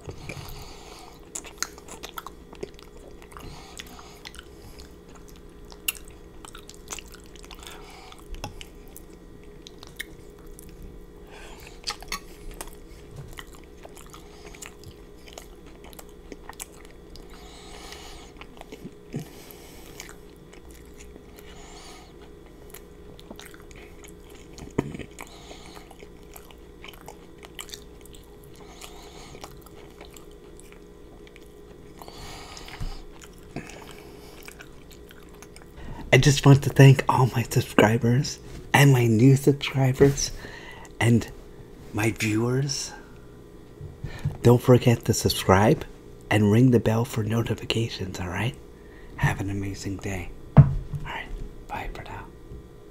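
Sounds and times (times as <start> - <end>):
chewing with wet mouth sounds: 0.0 - 37.9.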